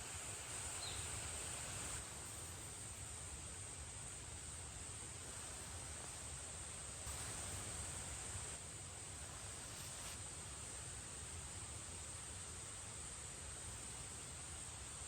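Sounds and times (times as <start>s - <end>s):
forest ambience hiss: 0.0s - 15.0s
crickets trilling: 0.1s - 2.0s.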